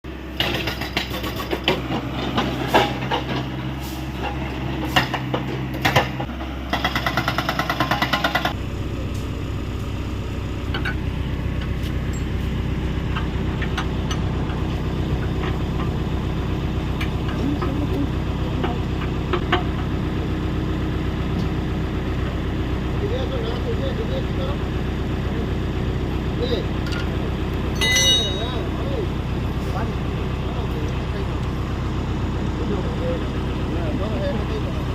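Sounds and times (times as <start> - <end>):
diesel engine running: 0.0 - 34.9
hydraulic breaker hammering: 0.4 - 3.5, 4.9 - 8.6, 26.9 - 28.7
sharp metal knocks: 4.9 - 8.6, 27.8 - 28.6.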